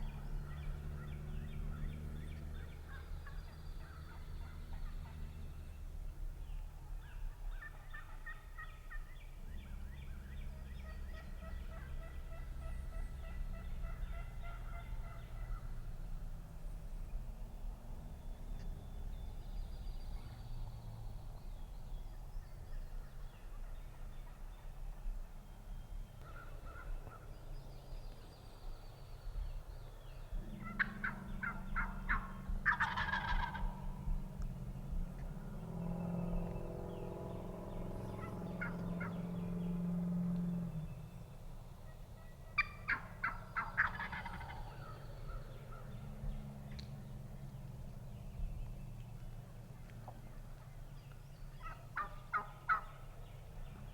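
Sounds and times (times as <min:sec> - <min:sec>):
turkey gobbling: 0:07.5 - 0:09.0, 0:11.0 - 0:15.8, 0:30.4 - 0:34.0, 0:38.2 - 0:39.2, 0:42.2 - 0:45.9, 0:51.6 - 0:53.0.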